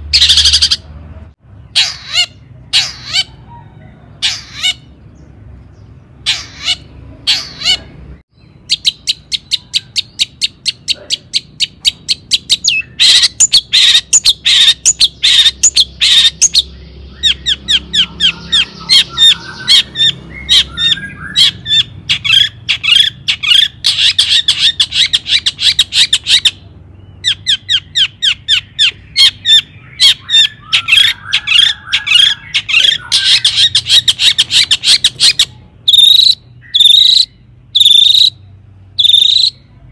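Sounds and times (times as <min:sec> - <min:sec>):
low warbling bird chatter: 0:00.0 - 0:39.8
bird calling rapid high notes: 0:08.7 - 0:26.6, 0:27.3 - 0:38.4, 0:39.0 - 0:39.6.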